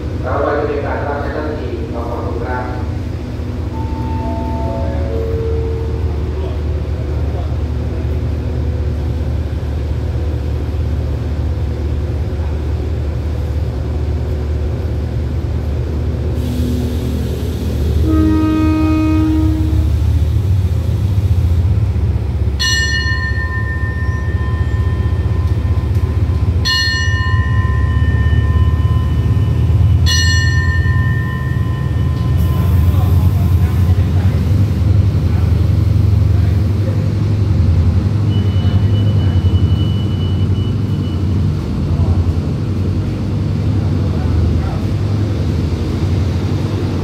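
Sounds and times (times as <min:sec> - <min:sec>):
diesel train engine drone: 0:00.0 - 0:47.0
train horn blast: 0:17.9 - 0:20.0
bell ringing: 0:22.6 - 0:33.0.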